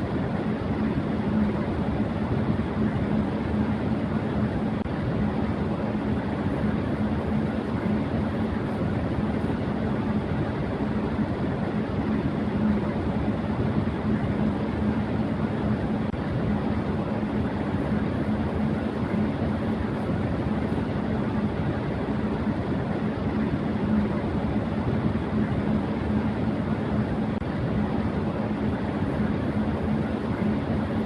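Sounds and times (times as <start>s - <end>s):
electric fan running: 0.0s - 31.0s.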